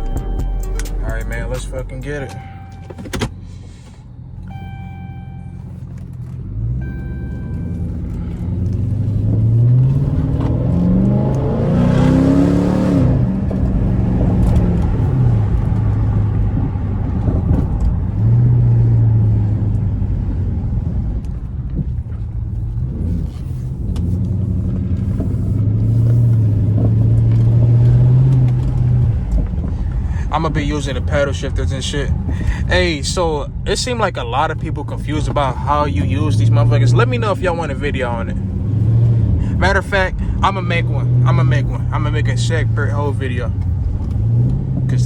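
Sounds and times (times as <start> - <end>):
electronic chime tones: 0.0 - 3.2, 4.5 - 5.8, 6.8 - 8.1
car engine accelerating hard: 0.0 - 45.0.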